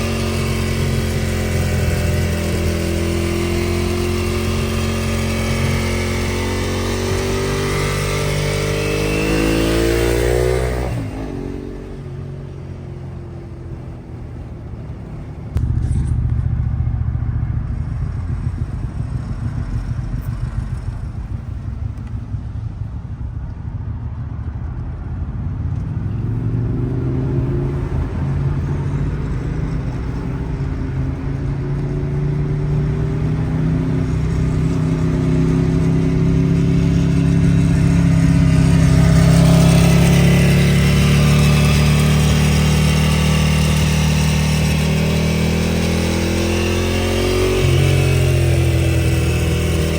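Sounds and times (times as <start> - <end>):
motorcycle engine revving: 0.0 - 49.9
loud deep rumble: 14.3 - 49.9.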